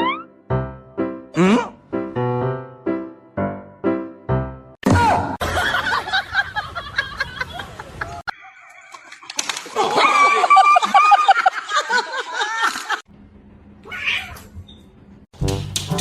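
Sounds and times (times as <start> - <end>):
cat yowling: 13.8 - 14.5.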